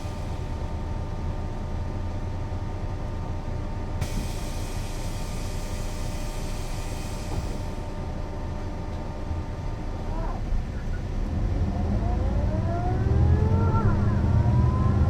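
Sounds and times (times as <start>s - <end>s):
bus diesel drone: 0.0s - 15.0s
air hiss: 4.0s - 7.9s.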